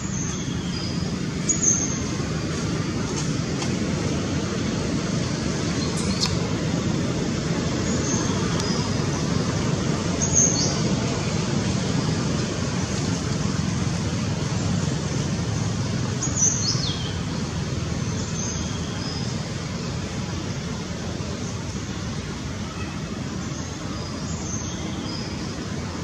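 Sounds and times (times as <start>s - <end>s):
bird chirping: 0.0s - 2.8s, 5.6s - 6.5s, 10.1s - 11.1s
low outdoor rumble: 0.0s - 26.0s.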